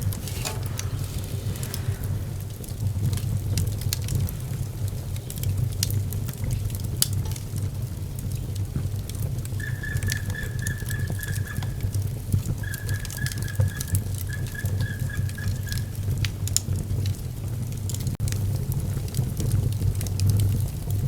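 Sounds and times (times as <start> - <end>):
wood fire crackling: 0.0 - 21.0
high thin whistle: 9.6 - 12.0, 12.6 - 16.0.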